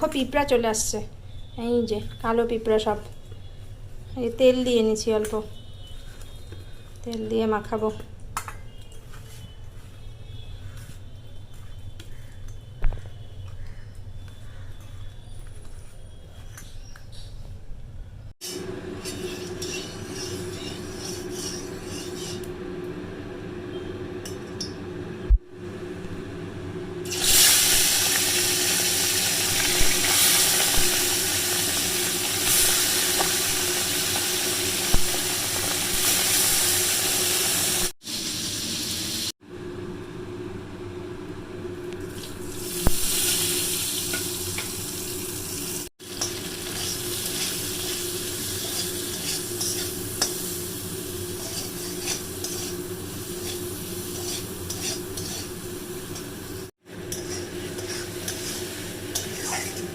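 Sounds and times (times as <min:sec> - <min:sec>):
utensils clinking against pan: 0:19.0 - 0:22.5, 0:46.0 - 0:50.6, 0:51.3 - 0:56.3, 0:57.1 - 0:59.9
fish sizzling in hot oil: 0:27.1 - 0:39.3, 0:42.2 - 0:59.9.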